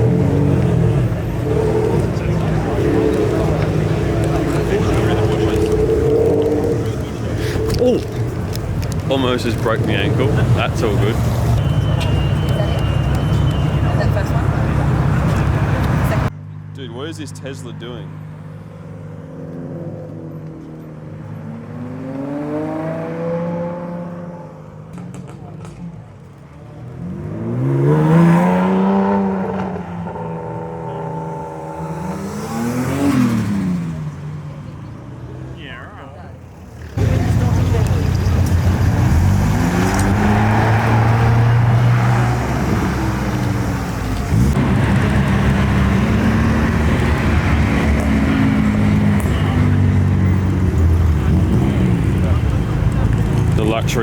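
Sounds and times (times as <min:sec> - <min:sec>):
car engine revving pulling away: 0:00.0 - 0:16.3, 0:19.4 - 0:25.8, 0:26.8 - 0:35.8, 0:36.5 - 0:54.0.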